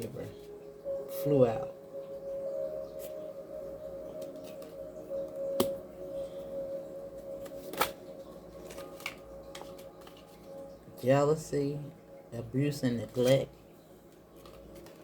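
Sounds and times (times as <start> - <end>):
background music drone: 0.0 - 15.0
cards being handled: 7.4 - 8.0, 8.6 - 10.5, 14.4 - 15.0.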